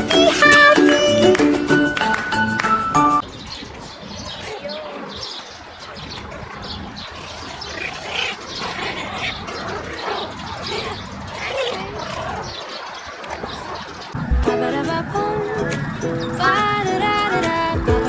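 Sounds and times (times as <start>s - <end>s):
puppies squeaking and whimpering: 15.3s - 18.0s.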